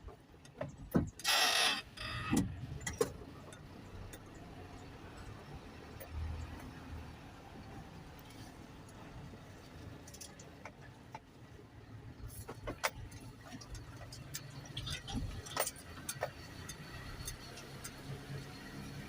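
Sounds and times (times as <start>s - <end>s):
sharp clicks and rattles: 12.4s - 18.6s.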